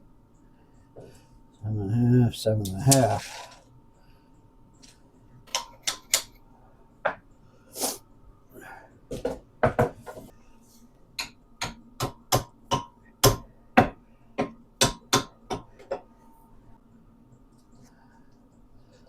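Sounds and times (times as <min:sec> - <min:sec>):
hammer tapping on metal: 0:11.2 - 0:16.0.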